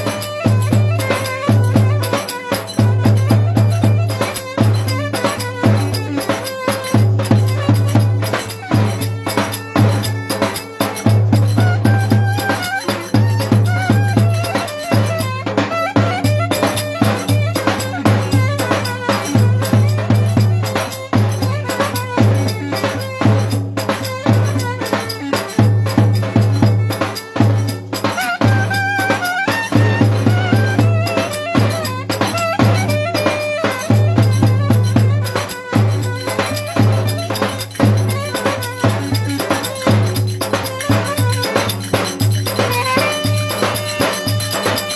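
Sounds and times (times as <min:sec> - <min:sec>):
folk dance band music: 0:00.0 - 0:44.9
shaker percussion: 0:00.0 - 0:44.9
steady drum beat: 0:00.0 - 0:44.9.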